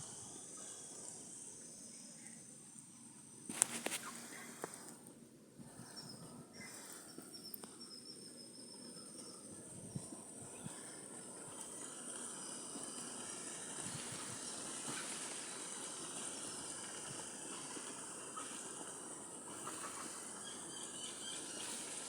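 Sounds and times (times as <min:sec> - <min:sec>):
high-pitched insect chorus: 0:00.0 - 0:04.8, 0:06.7 - 0:22.0
faint chirps: 0:00.0 - 0:05.0, 0:05.7 - 0:22.0.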